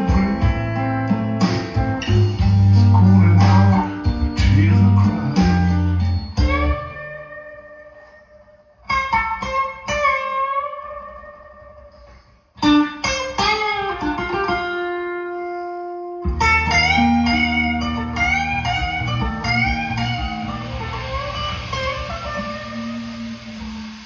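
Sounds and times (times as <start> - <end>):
blues guitar solo: 0.0 - 24.0
low bass line: 1.8 - 7.1, 16.3 - 24.0.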